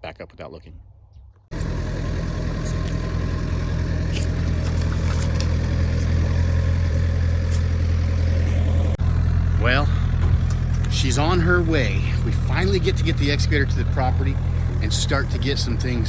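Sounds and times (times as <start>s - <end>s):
heavy engine running: 1.5s - 16.0s.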